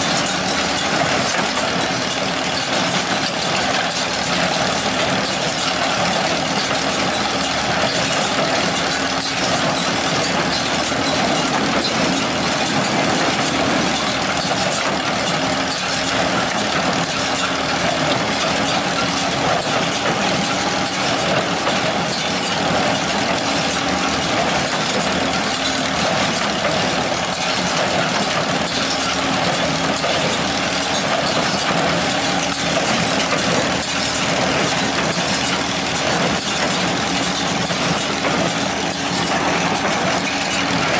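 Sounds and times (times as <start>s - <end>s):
engine running loudly: 0.0s - 40.9s
hay baler running: 0.0s - 40.9s.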